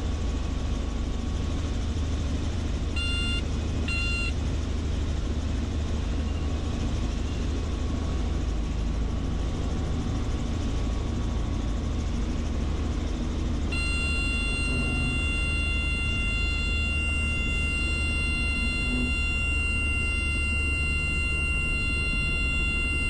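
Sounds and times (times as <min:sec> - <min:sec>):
helicopter engine and rotor drone: 0:00.0 - 0:23.0
high electronic warning tone: 0:03.0 - 0:04.4, 0:13.6 - 0:23.0.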